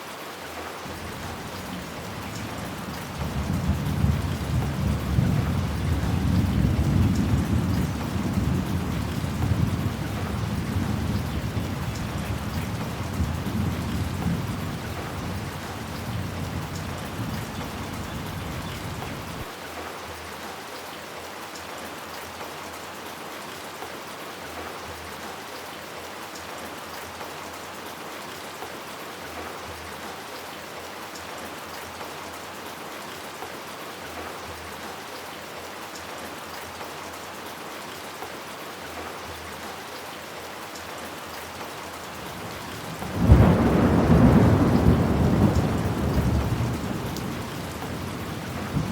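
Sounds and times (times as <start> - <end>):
rain on hard surfaces: 0.0 - 48.9
low thunder rumble: 42.4 - 48.9
loud thunderclap: 42.9 - 48.9.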